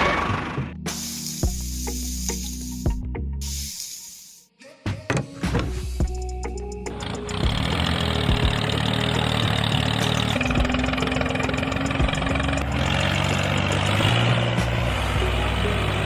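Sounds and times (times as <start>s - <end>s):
engine running: 0.0s - 0.9s, 6.2s - 16.0s.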